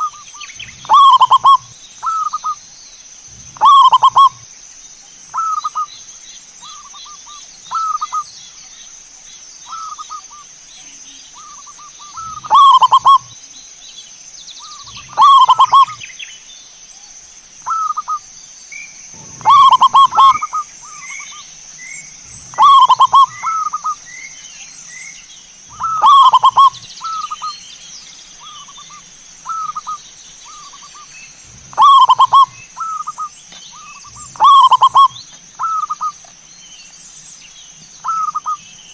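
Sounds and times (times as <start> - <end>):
doves cooing: 0.0 - 2.6, 3.3 - 4.4, 11.4 - 13.3, 14.6 - 16.1, 19.1 - 24.1, 25.7 - 27.6, 28.4 - 36.2, 38.0 - 38.6
steady high hiss: 0.0 - 38.9.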